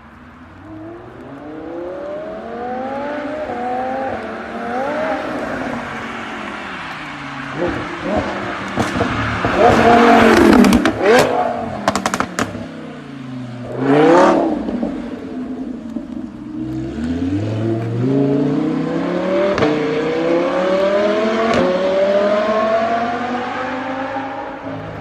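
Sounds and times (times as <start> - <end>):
car engine accelerating: 0.8 - 25.0
exhaust pops and cracks: 8.1 - 12.7.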